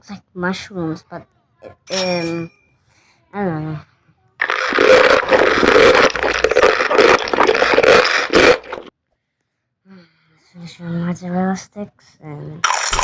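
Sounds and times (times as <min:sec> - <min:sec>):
crunching fried food: 0:04.4 - 0:08.9, 0:12.6 - 0:13.0.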